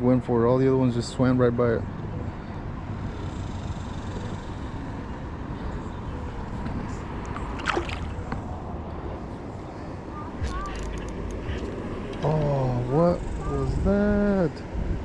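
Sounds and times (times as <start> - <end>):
river water rushing: 7.2 - 8.8.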